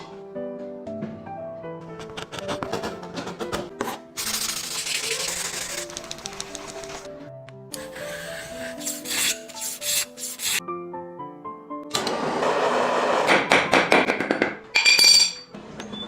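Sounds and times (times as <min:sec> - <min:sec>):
background music: 0:00.0 - 0:15.6
sanding bamboo by hand: 0:04.2 - 0:07.0, 0:07.8 - 0:10.6.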